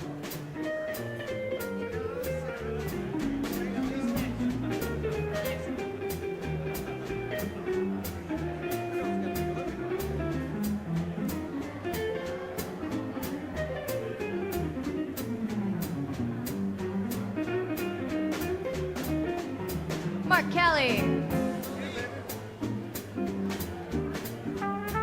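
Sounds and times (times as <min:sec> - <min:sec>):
drums on cymbal: 0:00.0 - 0:25.0
jazz guitar solo: 0:00.0 - 0:25.0
walking upright bass: 0:00.0 - 0:25.0.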